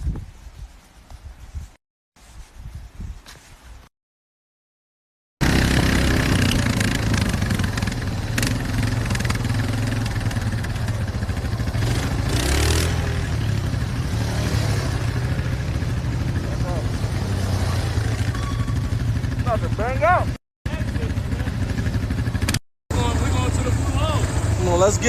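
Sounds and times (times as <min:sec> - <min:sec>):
loud motorcycle engine: 0:05.4 - 0:25.0.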